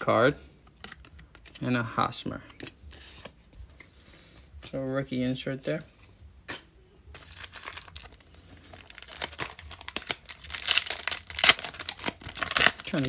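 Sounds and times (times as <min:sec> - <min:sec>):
foil packs tearing and crinkling: 0:07.2 - 0:13.0.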